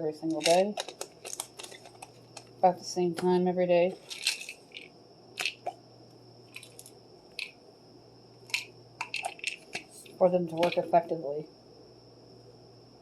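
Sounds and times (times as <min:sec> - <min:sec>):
faint electrical hum: 0:00.0 - 0:13.0
pill bottles clicking and rattling: 0:00.2 - 0:02.5, 0:03.9 - 0:05.8, 0:06.5 - 0:07.6, 0:08.5 - 0:10.9.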